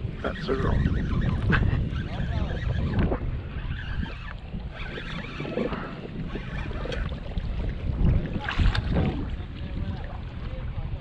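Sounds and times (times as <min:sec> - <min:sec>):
water lapping against kayak hull: 0:00.0 - 0:11.0
wind buffeting microphone: 0:00.0 - 0:11.0
knocks or splashes: 0:08.4 - 0:09.4.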